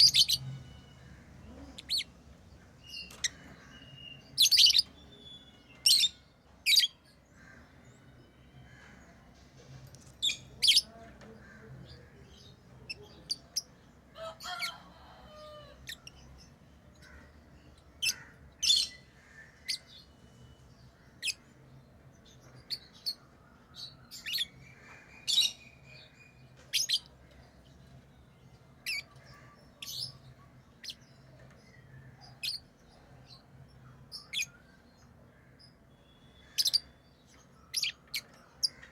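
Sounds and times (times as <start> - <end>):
lovebirds chirping: 0.0 - 38.9.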